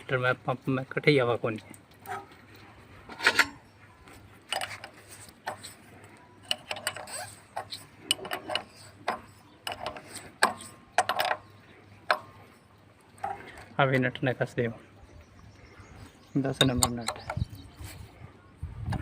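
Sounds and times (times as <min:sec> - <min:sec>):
spanner clinking on metal: 0:03.1 - 0:03.6, 0:04.5 - 0:05.8, 0:06.4 - 0:12.4.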